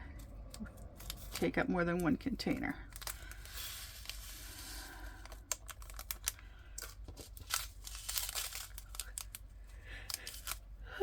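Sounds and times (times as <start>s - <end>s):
soft rustle: 2.9s - 5.2s.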